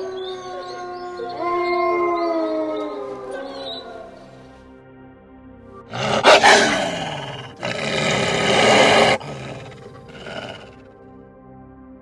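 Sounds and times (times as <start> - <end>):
soft background music: 0.0 - 12.0
wolf harsh vocalizations: 5.9 - 10.8.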